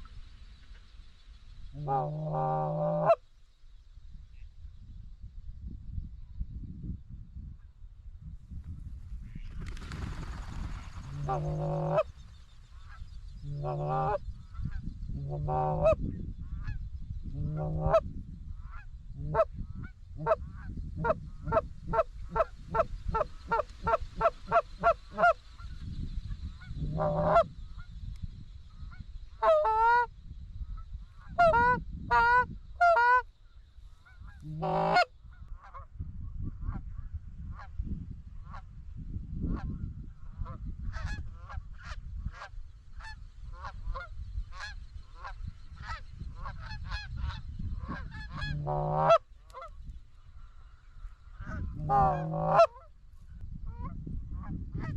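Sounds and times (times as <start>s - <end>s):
geese honking: 1.8s - 3.2s, 11.1s - 12.1s, 13.5s - 14.2s, 15.3s - 16.0s, 17.4s - 18.0s, 20.2s - 25.4s, 26.8s - 27.5s, 29.4s - 30.1s, 31.2s - 33.2s, 34.0s - 35.1s, 43.0s - 49.7s, 51.3s - 52.9s.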